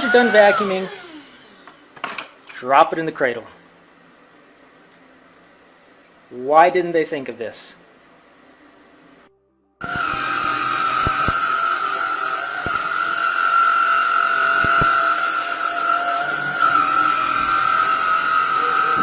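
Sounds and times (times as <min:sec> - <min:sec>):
stick vacuum whining: 0:00.0 - 0:02.4, 0:09.8 - 0:19.0.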